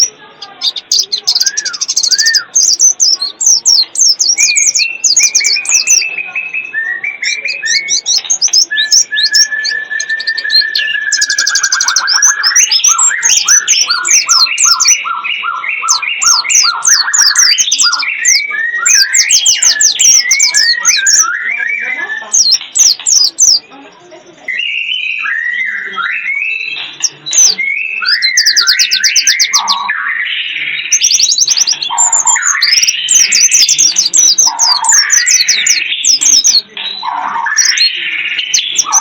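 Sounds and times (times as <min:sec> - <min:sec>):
bird whistles: 0:00.0 - 0:23.7, 0:24.5 - 0:39.0
high rapid bird chirping: 0:00.0 - 0:23.8, 0:24.5 - 0:39.0.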